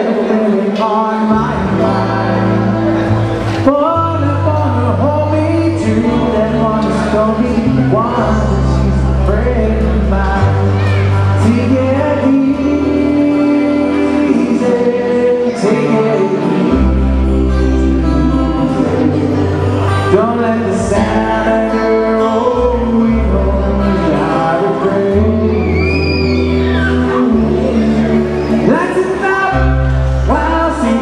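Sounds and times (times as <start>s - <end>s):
bass line: 0.0s - 31.0s
guitar: 0.0s - 31.0s
person singing: 0.0s - 31.0s.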